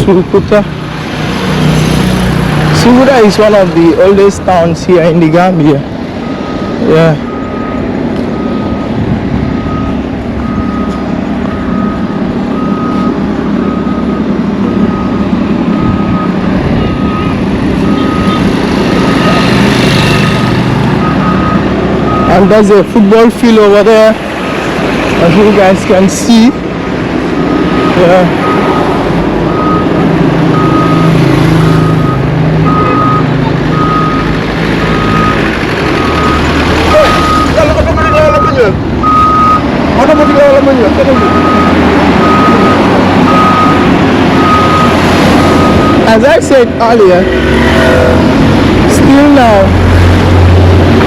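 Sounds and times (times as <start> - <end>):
heavy vehicle engine running: 0.0 - 51.0
reversing alarm beeping: 6.2 - 24.1, 27.4 - 46.4.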